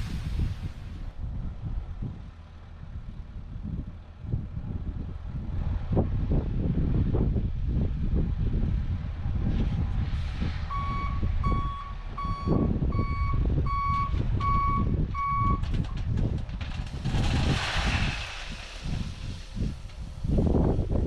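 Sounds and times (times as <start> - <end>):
diesel engine rumble: 0.0 - 21.0
reversing alarm beeping: 10.7 - 15.6
hissing burst: 17.1 - 20.3.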